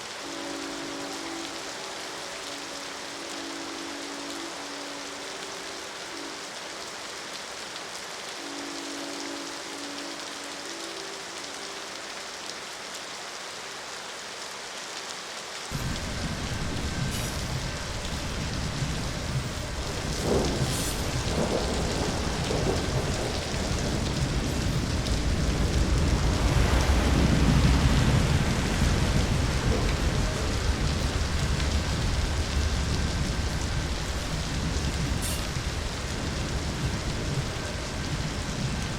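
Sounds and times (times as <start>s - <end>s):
distant train horn blasts: 0.0s - 6.7s, 8.3s - 12.1s, 15.7s - 38.8s
heavy rain hiss: 0.0s - 38.9s
deep rolling thunder: 15.7s - 38.9s.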